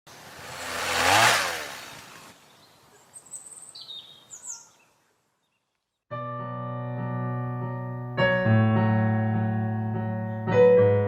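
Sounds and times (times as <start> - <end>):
high bird chirps: 2.4 - 6.0.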